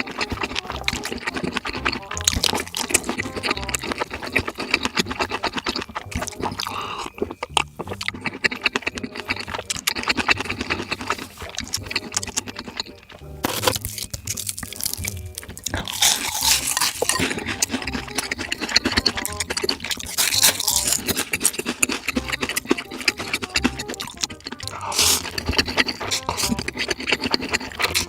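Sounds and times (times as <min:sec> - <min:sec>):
background music: 0:00.0 - 0:28.0
slurping and chewing noodles: 0:00.0 - 0:28.0.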